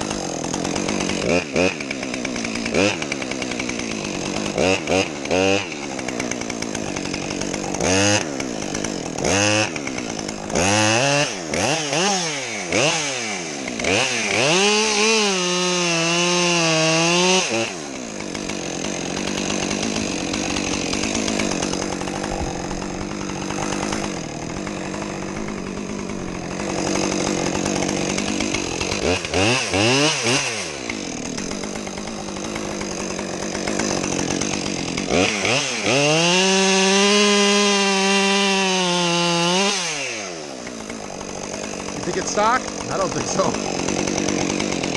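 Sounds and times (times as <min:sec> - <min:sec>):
chainsaw revving: 0:00.0 - 0:44.9.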